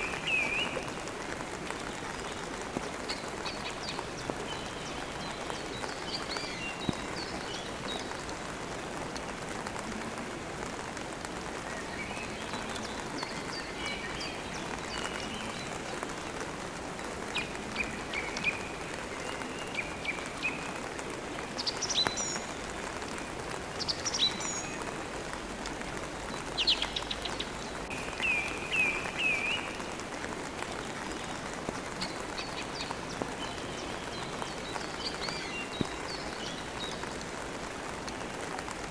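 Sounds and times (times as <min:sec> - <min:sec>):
songbirds chirping: 0:00.0 - 0:38.9
steady rain: 0:00.0 - 0:38.9.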